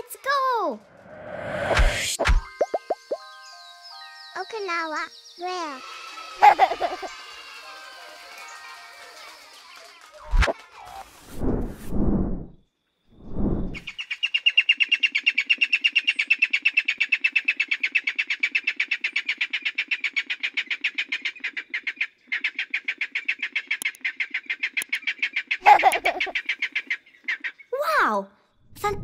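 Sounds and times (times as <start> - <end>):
bird calling sharp repeated notes: 13.8 - 27.8.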